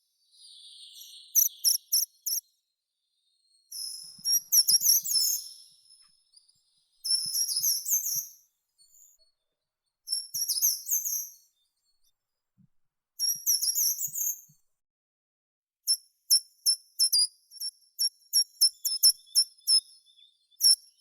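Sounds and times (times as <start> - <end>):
small songbird singing: 0.2 - 9.2, 10.1 - 11.8, 15.9 - 21.0.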